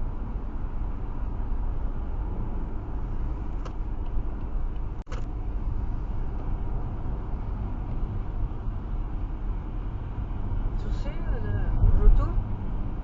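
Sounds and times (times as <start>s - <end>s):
car road noise rumble: 0.0s - 13.0s.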